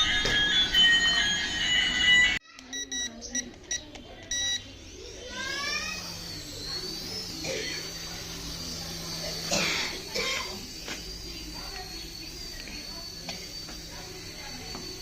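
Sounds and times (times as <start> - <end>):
short high beeps: 2.7 - 4.6
steady low hum: 3.4 - 15.0.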